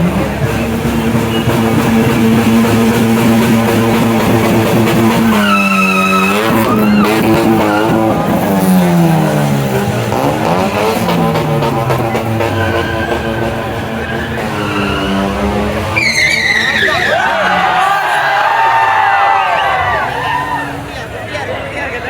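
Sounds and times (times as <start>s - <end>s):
car engine revving: 0.0s - 21.2s
tyres squealing: 0.0s - 21.3s.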